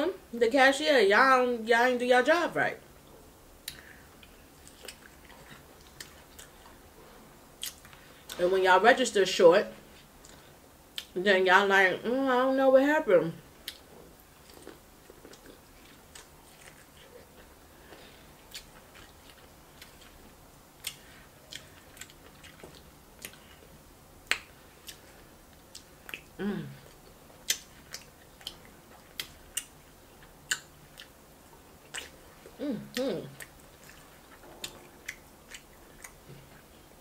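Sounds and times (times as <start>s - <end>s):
close chewing with mouth clicks: 3.6s - 8.4s, 13.6s - 36.9s
person humming: 26.4s - 26.8s, 32.6s - 33.4s.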